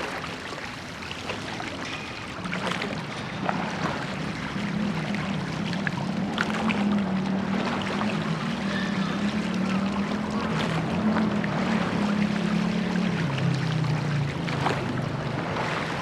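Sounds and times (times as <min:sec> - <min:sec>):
boat engine hum: 0:00.0 - 0:16.0
water wash: 0:00.0 - 0:16.0.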